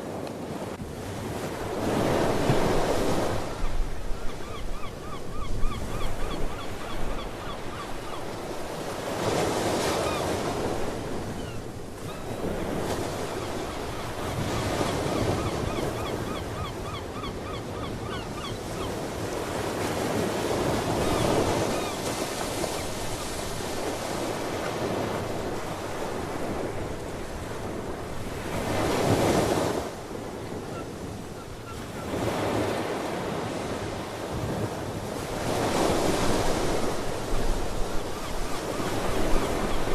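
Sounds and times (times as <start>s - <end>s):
seabirds calling: 2.9s - 19.8s, 20.6s - 26.4s, 30.3s - 33.0s, 37.9s - 39.9s.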